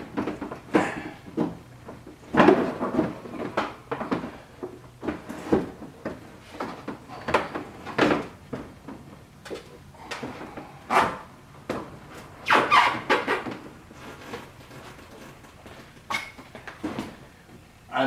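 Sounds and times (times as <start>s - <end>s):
plastic knocks and clatter: 0.0s - 10.4s.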